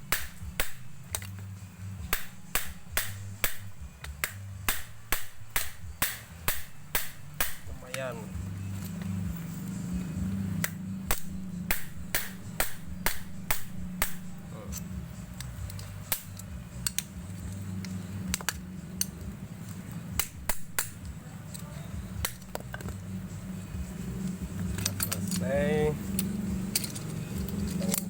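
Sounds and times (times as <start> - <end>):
metallic taps on motor housing: 10.6 - 23.0.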